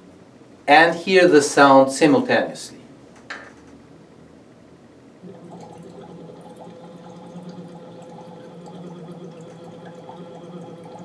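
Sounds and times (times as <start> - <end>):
bubbling in water: 5.2 - 11.0
person humming through a tube: 5.2 - 11.0.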